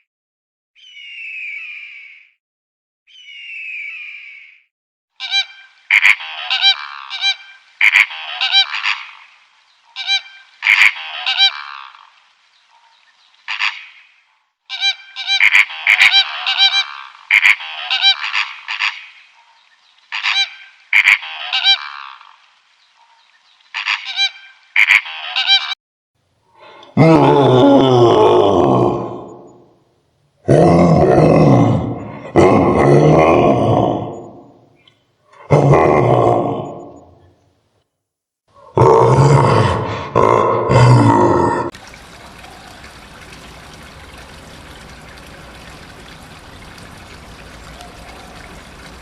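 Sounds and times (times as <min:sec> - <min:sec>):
bird honking: 0:05.2 - 0:09.3, 0:09.9 - 0:12.1, 0:14.7 - 0:19.4, 0:20.1 - 0:22.3, 0:23.8 - 0:25.8, 0:42.0 - 0:49.0.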